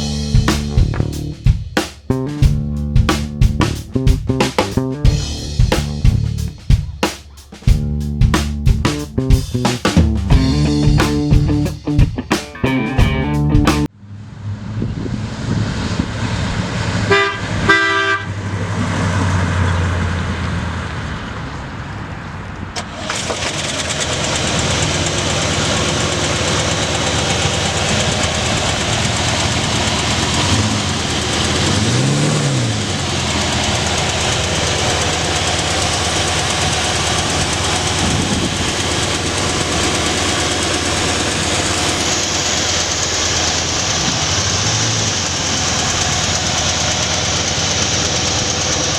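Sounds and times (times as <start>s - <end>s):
car engine running: 0.0s - 7.0s, 7.7s - 13.9s, 22.8s - 48.9s
car horn honks: 17.1s - 18.4s.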